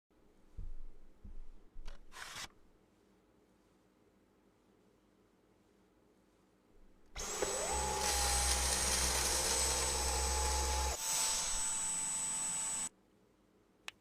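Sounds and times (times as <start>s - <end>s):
vacuum motor whining: 7.2s - 12.9s.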